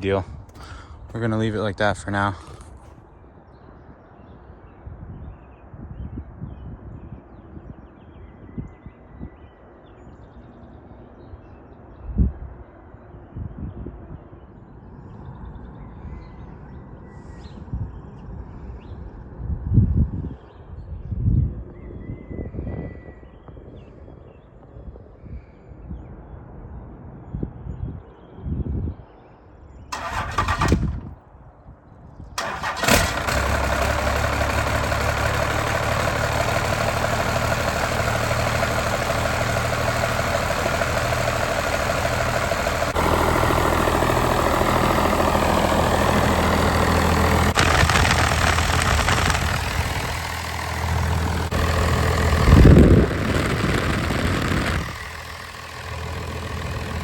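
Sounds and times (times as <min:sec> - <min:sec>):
truck engine cranking and running: 0:00.0 - 0:03.0, 0:29.9 - 0:31.2, 0:32.4 - 0:57.0.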